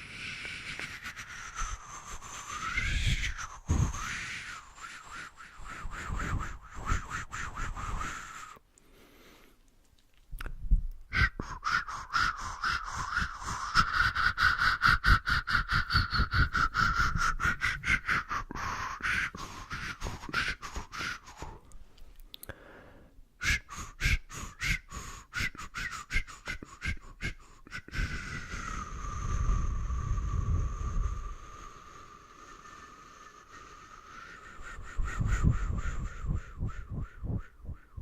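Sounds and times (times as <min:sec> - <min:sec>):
mouth clicks and pops: 0:09.7 - 0:22.6.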